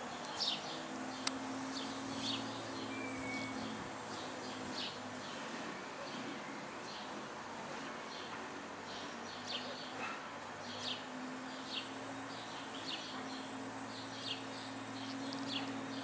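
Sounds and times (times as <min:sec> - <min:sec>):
small songbird chirping: 0:00.3 - 0:05.4, 0:10.6 - 0:16.0.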